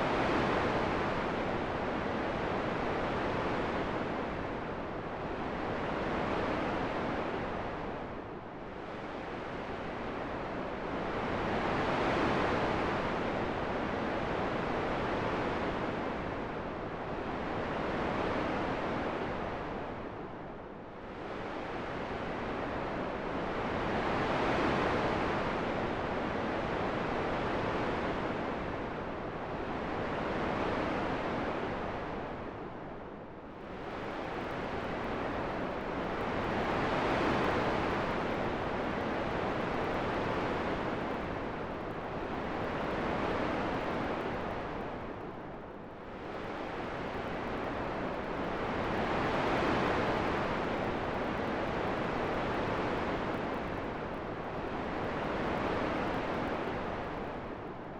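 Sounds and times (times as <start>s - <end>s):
wind blowing in gusts: 21.0s - 57.9s.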